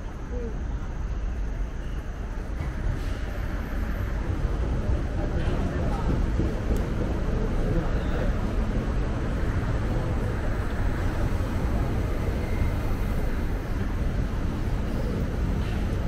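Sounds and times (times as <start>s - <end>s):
electric train humming: 0.0s - 16.0s.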